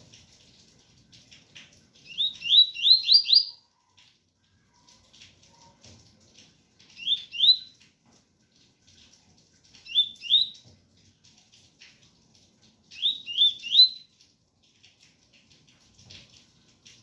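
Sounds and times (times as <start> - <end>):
faint rain pattering: 0.0 - 17.0
bird whistling song: 2.0 - 3.6, 7.0 - 7.8, 9.8 - 10.6, 12.9 - 14.1.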